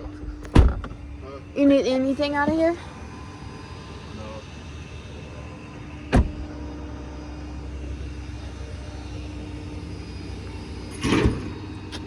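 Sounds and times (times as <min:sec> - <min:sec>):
vehicle engine rumbling: 0:00.0 - 0:12.0
car door shutting: 0:00.3 - 0:01.0, 0:06.1 - 0:06.5.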